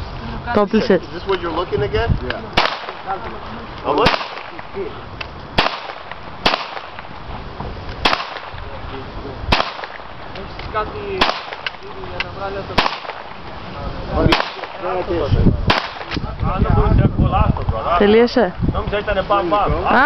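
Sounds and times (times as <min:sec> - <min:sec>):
gunshots with echo: 0:02.5 - 0:03.2, 0:03.9 - 0:04.9, 0:05.6 - 0:07.2, 0:08.0 - 0:08.8, 0:09.5 - 0:10.3, 0:11.1 - 0:11.8, 0:12.7 - 0:13.4, 0:14.2 - 0:16.2.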